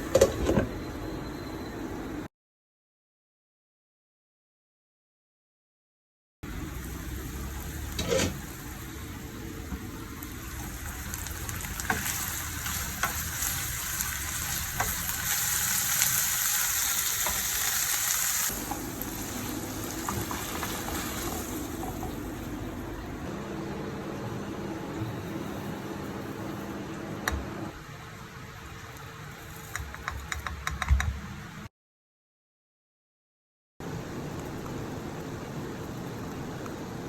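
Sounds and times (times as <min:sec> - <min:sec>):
food sizzling in hot oil: 0:06.5 - 0:22.6.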